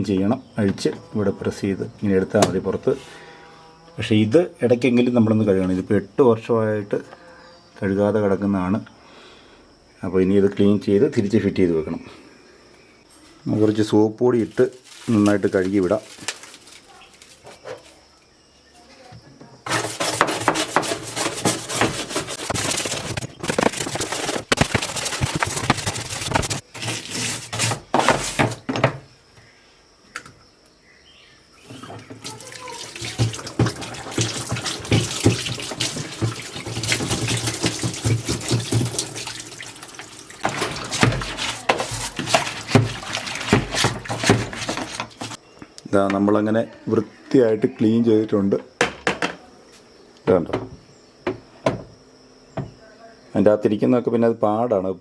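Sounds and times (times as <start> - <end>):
tap water running and splashing: 14.4 - 17.6, 19.7 - 28.6, 31.6 - 45.4
scrubbing: 14.4 - 18.0, 19.6 - 28.8, 31.7 - 45.4.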